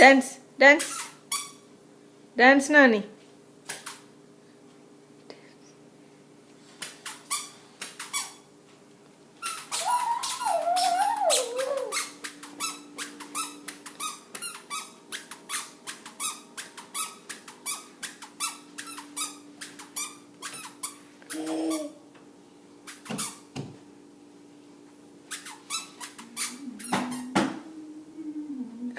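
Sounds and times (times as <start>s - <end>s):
sandals squeaking with steps: 6.8s - 8.5s, 9.4s - 21.4s, 22.9s - 23.5s, 25.3s - 27.3s
wavering squeal: 9.7s - 12.1s.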